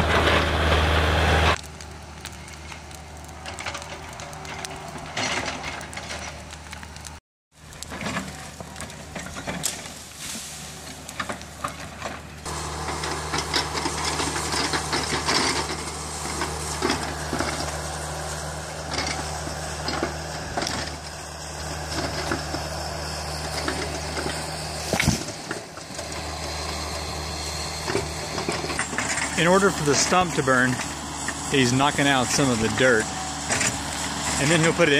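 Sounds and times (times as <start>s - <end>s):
excavator diesel engine: 0.0s - 34.9s
wood cracking and clanking: 1.6s - 21.2s, 23.5s - 27.2s.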